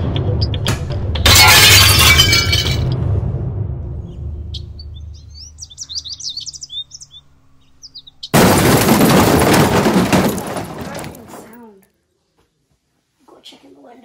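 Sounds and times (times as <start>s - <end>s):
birds chirping: 4.0s - 8.4s.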